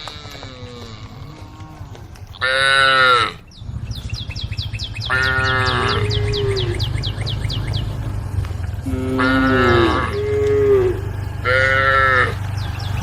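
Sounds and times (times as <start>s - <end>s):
cows mooing: 0.0s - 3.4s, 5.0s - 13.0s
steady low hum: 0.0s - 13.0s
rapid high chirping: 3.4s - 13.0s.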